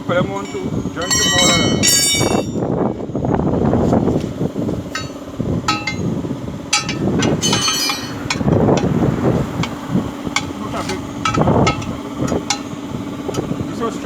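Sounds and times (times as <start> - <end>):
metal clinking on metal: 0.3 - 2.7, 4.9 - 8.6, 10.4 - 12.8.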